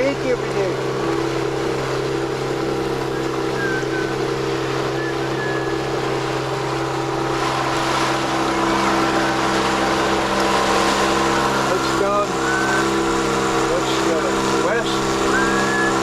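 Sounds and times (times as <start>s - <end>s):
boat engine droning: 0.0s - 16.0s
water noise: 0.0s - 16.0s
wind: 0.0s - 16.0s.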